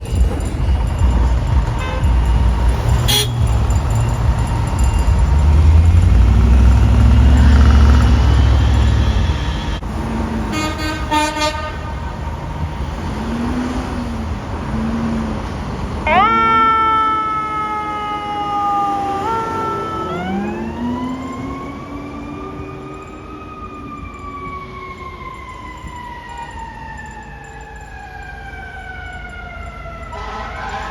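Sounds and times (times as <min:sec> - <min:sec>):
fire engine diesel rumbling: 0:00.0 - 0:30.9
siren wailing: 0:02.7 - 0:09.8, 0:16.0 - 0:30.9.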